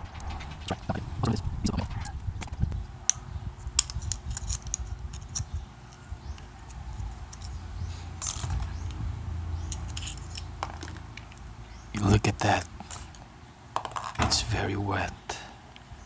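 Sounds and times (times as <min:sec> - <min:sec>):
low handling rumble: 0:00.0 - 0:03.6, 0:06.8 - 0:11.9.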